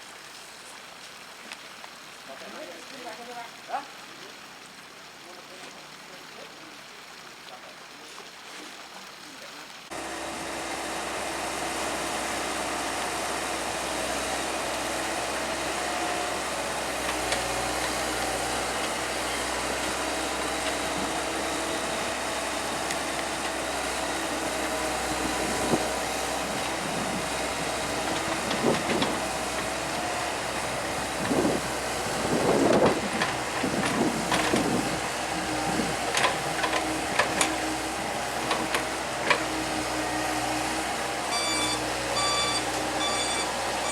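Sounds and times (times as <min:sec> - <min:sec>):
excavator engine running: 0:09.9 - 0:43.9
bucket knocking and scraping rock: 0:32.4 - 0:34.9.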